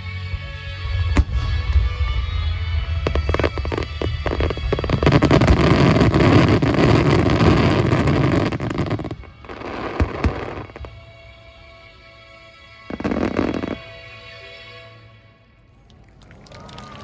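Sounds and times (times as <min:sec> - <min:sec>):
fireworks crackling and booming: 0:00.2 - 0:11.2, 0:12.9 - 0:14.0
fireworks sharp bangs: 0:00.9 - 0:11.0.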